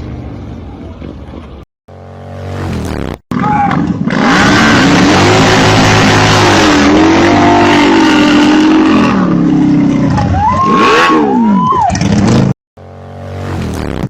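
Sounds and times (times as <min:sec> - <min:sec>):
motor vehicle engine revving: 0:01.9 - 0:10.0.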